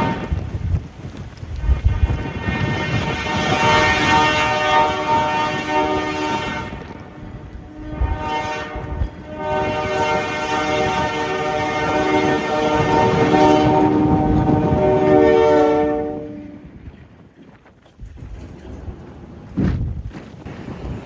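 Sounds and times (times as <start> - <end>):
locomotive air horn blasts: 0.0 - 0.4, 1.6 - 16.8
locomotive low rumble: 0.0 - 21.0.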